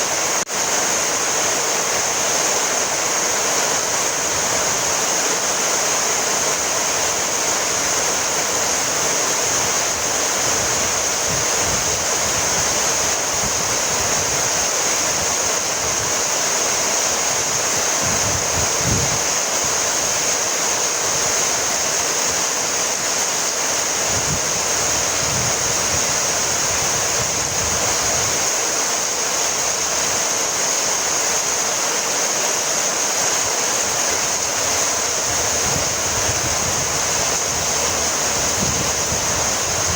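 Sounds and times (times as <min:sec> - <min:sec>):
heavy rain falling: 0:00.0 - 0:39.9
wind gusts on microphone: 0:06.1 - 0:28.8, 0:33.4 - 0:39.9.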